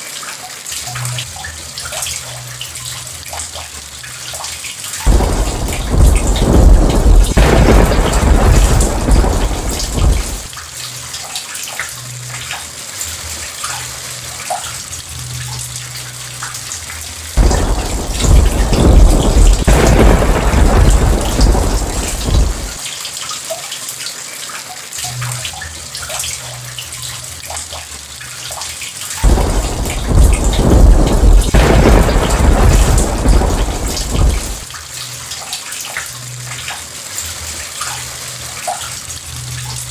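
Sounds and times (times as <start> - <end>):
heavy rain: 4.0 - 24.1, 25.0 - 39.9
thunder rumbling: 5.1 - 10.6, 17.4 - 22.8, 29.2 - 34.7.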